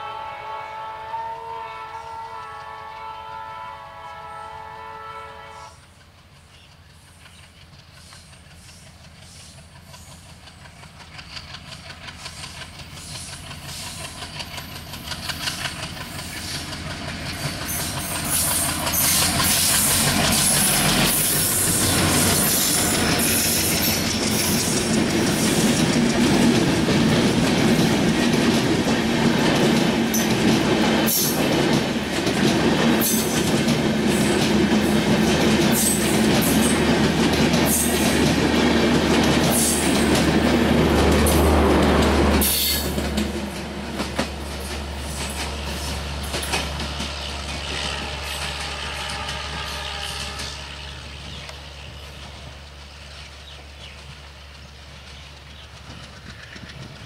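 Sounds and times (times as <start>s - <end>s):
train horn: 0.0s - 5.9s, 40.8s - 43.3s, 44.9s - 51.5s
diesel locomotive passing: 0.0s - 57.0s
train wheels clacking on rails: 5.6s - 57.0s.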